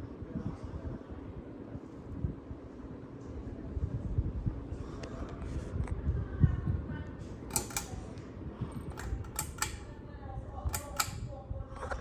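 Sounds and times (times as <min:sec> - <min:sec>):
ceiling fan pull-chain switch clicking: 0:07.5 - 0:08.2, 0:08.8 - 0:10.0, 0:10.6 - 0:11.4.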